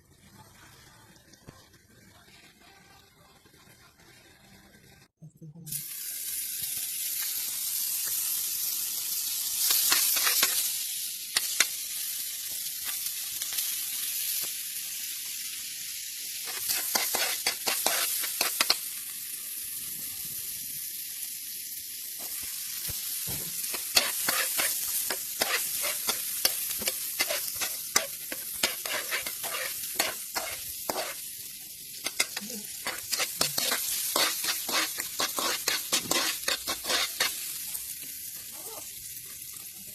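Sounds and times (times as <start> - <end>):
food sizzling in oil: 5.7 - 39.9
utensil scraping a pan: 9.7 - 10.6, 16.4 - 18.8, 23.3 - 31.3, 32.0 - 37.5.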